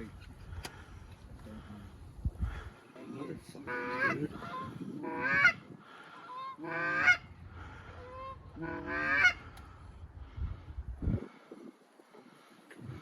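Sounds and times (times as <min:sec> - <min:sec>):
geese honking: 0:03.1 - 0:09.8.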